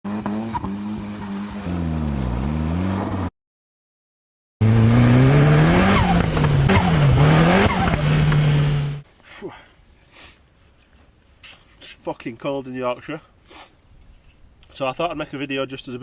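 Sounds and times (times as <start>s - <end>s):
car engine revving: 0.1s - 3.3s, 4.6s - 9.0s.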